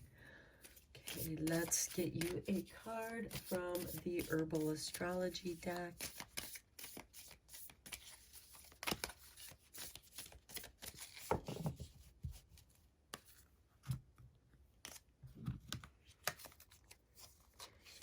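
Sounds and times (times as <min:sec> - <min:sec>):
cards being shuffled: 0:05.5 - 0:11.8, 0:15.7 - 0:18.0.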